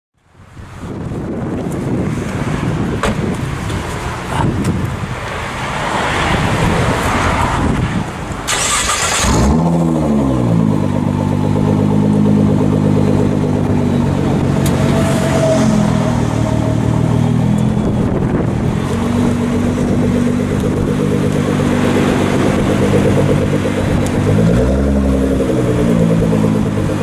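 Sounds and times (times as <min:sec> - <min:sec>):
wind noise: 0:00.4 - 0:27.0
car engine idling: 0:08.4 - 0:15.0, 0:16.2 - 0:27.0.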